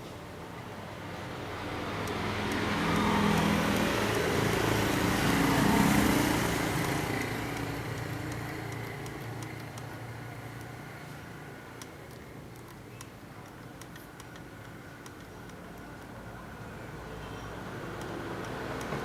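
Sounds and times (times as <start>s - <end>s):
vehicle engine passing by: 1.4s - 9.0s.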